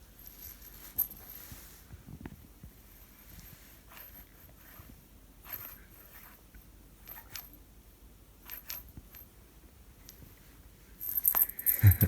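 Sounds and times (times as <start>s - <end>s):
faint light clinks and rattles: 0.2s - 1.6s, 8.4s - 9.3s, 11.0s - 12.0s.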